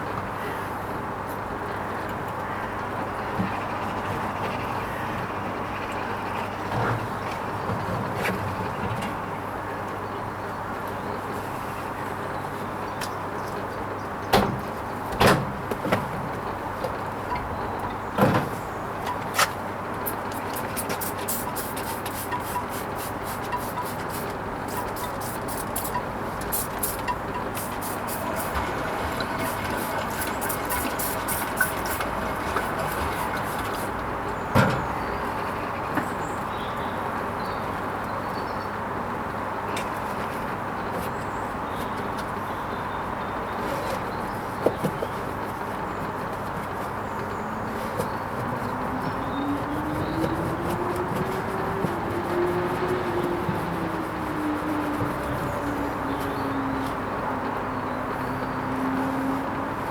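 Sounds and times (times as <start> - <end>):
washing machine humming: 13.8 - 35.9, 44.3 - 59.9.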